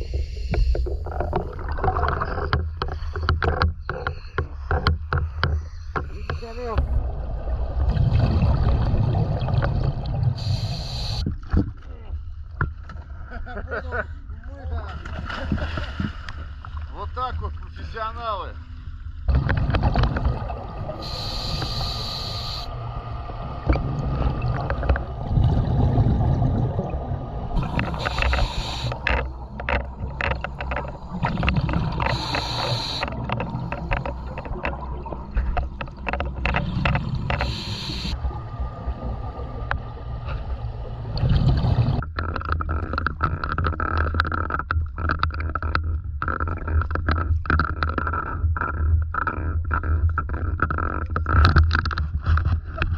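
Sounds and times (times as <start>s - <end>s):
muffled underwater rumble: 0.0s - 18.0s, 18.6s - 52.9s
regulator bubbles hissing: 6.1s - 11.3s, 19.3s - 42.0s
boat motor running: 19.3s - 42.1s.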